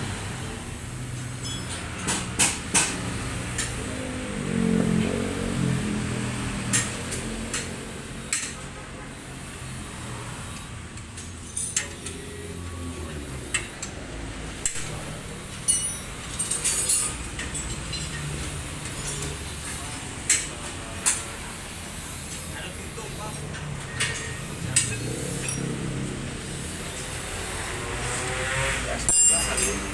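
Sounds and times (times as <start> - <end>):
metal tools clinking: 1.3 - 1.8, 14.7 - 20.6, 23.3 - 26.0, 29.0 - 29.9.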